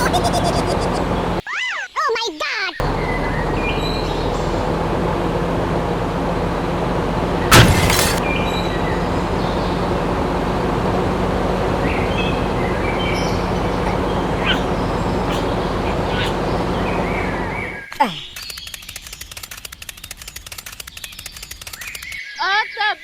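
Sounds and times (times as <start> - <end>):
steady mechanical hum: 2.8 - 17.8
loud sharp crack: 7.5 - 8.3
bird chirps: 12.0 - 19.3.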